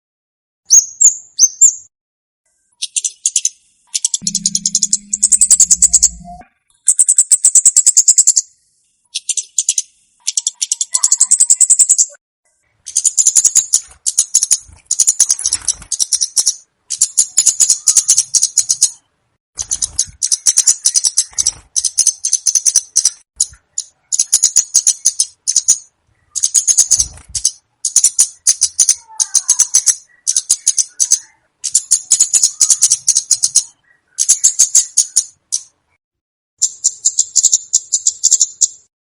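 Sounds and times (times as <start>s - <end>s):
bird rattling chatters: 12.9s - 18.9s, 19.6s - 35.7s.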